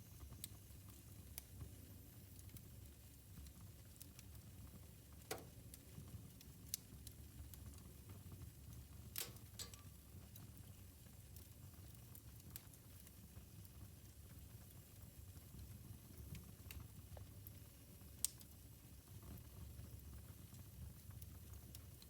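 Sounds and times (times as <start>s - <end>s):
fire popping and crackling: 8.9s - 10.6s.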